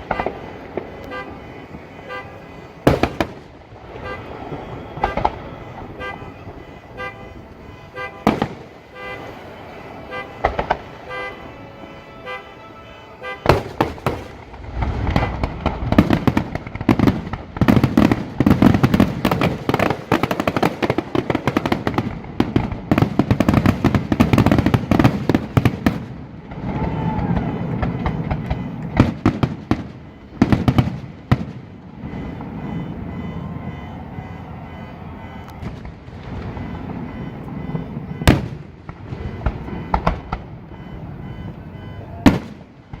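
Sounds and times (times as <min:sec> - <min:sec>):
firework booms: 0:00.0 - 0:11.4, 0:13.2 - 0:43.0
fireworks bangs and crackling: 0:00.0 - 0:11.6, 0:13.2 - 0:43.0
low rumble: 0:14.3 - 0:17.6.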